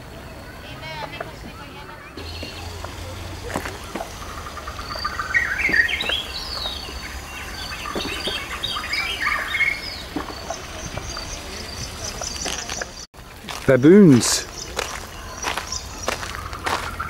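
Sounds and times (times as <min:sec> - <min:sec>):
birds chirping and chattering: 0:00.0 - 0:17.0.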